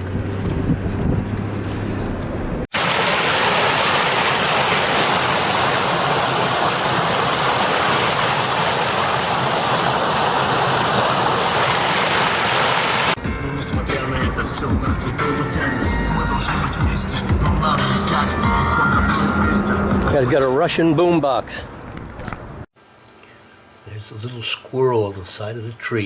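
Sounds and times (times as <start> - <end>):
river water rushing: 2.7 - 13.2.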